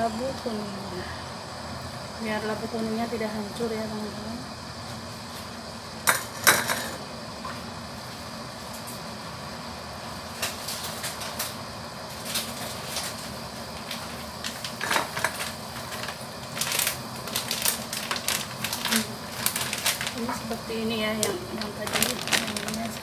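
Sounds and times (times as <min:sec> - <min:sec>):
curry simmering with popping bubbles: 0:07.4 - 0:23.0.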